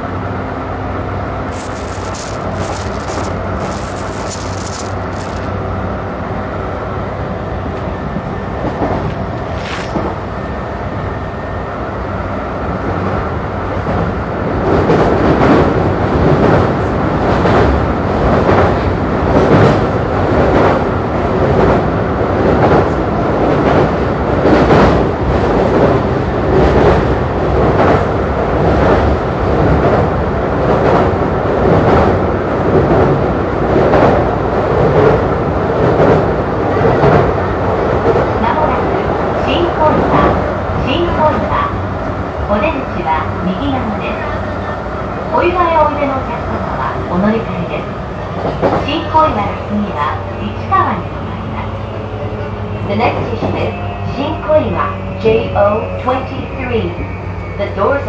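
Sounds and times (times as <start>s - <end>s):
train wheels rumbling on rail: 0.0s - 58.0s
regular rail clack: 1.4s - 11.0s, 12.9s - 58.0s.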